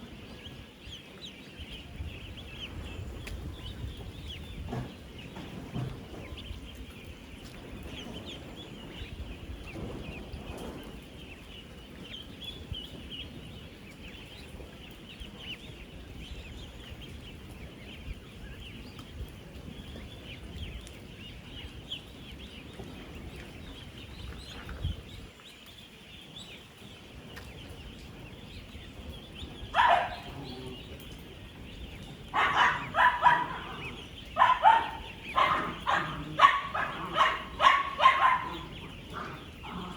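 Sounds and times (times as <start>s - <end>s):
ducklings peeping: 0.0s - 39.9s
loud duckling calls: 31.9s - 39.9s.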